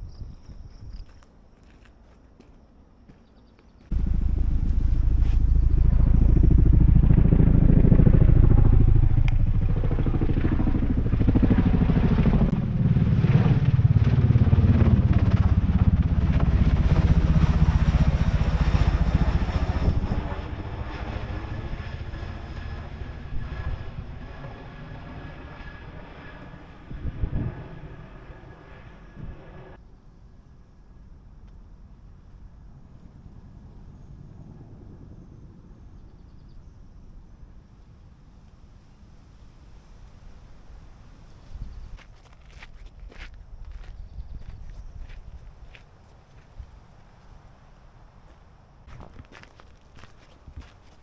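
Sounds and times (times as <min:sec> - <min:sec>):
motorcycle engine revving: 0:03.9 - 0:18.1.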